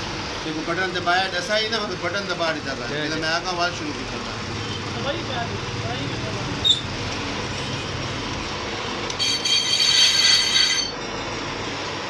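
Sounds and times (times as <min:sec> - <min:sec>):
lathe running: 0:07.0 - 0:11.1
high-pitched metallic squeal: 0:09.2 - 0:11.0.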